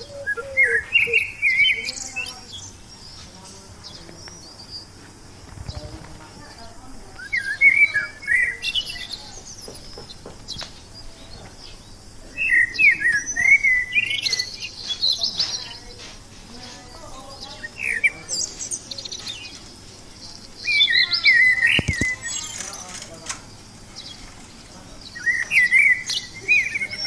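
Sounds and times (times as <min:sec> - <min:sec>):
parakeet chirping: 0:20.2 - 0:22.8.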